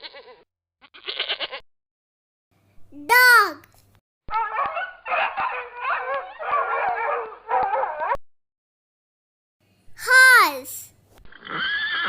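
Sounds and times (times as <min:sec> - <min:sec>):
dog howling and whining: 0:04.3 - 0:08.2.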